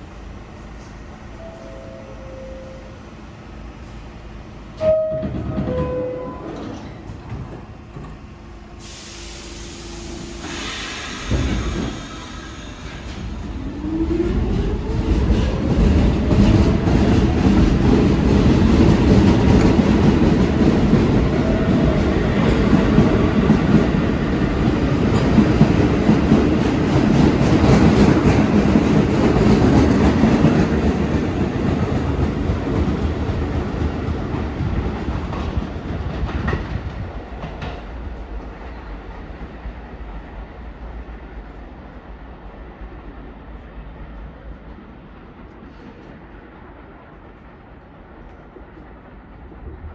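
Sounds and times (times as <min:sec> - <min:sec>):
subway train motors whining: 0:00.0 - 0:49.9
train wheels clattering over rails: 0:04.8 - 0:40.3.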